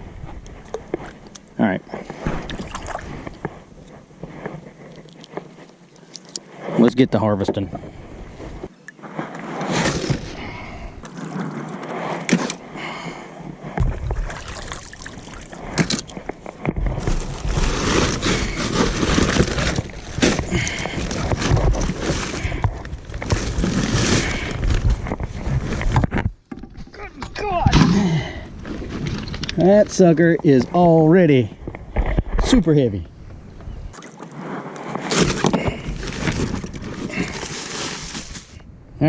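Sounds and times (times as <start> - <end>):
water splashing and sloshing: 2.0 - 3.9, 11.0 - 12.9, 13.7 - 24.8, 33.9 - 38.5.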